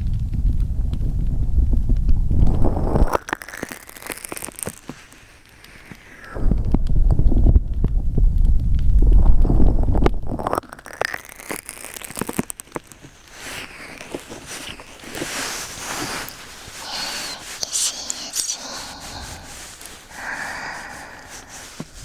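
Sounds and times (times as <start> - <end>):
muffled low rumble on microphone: 0.0 - 3.1, 6.3 - 10.5
soft close rustling: 0.5 - 22.0
faint breathy hiss: 14.5 - 22.0.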